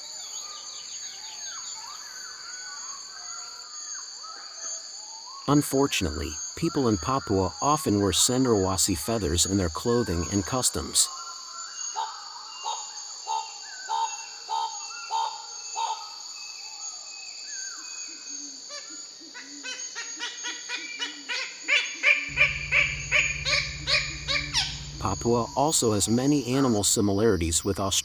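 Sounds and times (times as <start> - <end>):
high insect chorus: 0.0 - 28.0
bird calling: 20.2 - 27.6
low rumble: 22.3 - 26.5.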